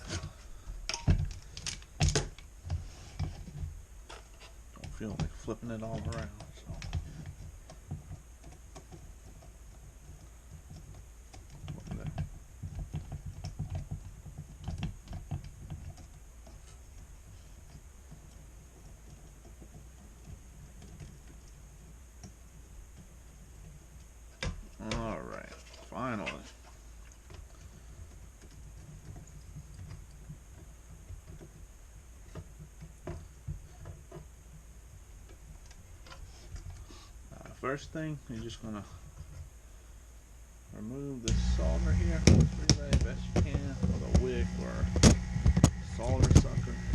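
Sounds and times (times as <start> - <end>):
tools clicking and knocking: 0.0 - 25.8
steady low hum: 0.0 - 46.9.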